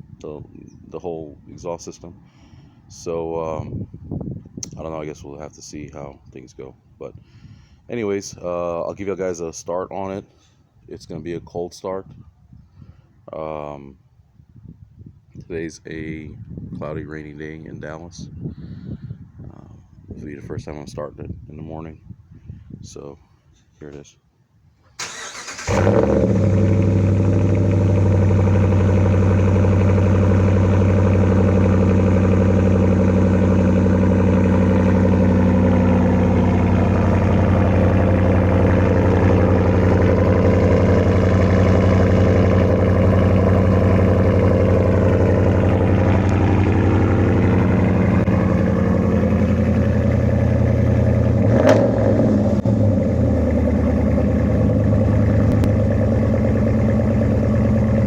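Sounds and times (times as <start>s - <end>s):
engine cranking: 25.0s - 27.4s
v eight engine loud cold idle: 25.0s - 58.0s.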